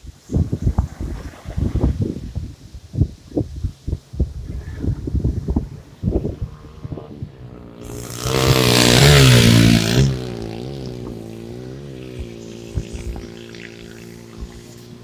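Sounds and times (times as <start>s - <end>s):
small engine running: 6.5s - 15.0s.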